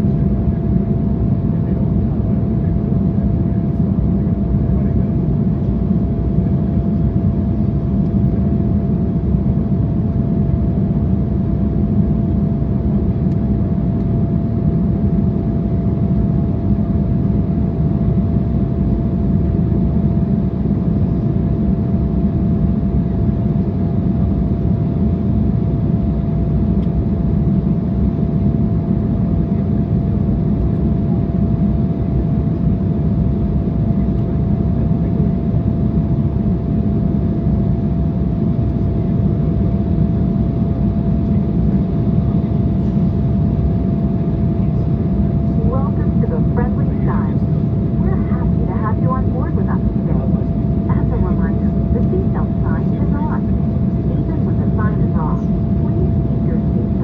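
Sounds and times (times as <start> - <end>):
jet engines: 0.0 - 57.0
rushing air in plane cabin: 40.8 - 57.0
thin steady hum: 41.2 - 57.0.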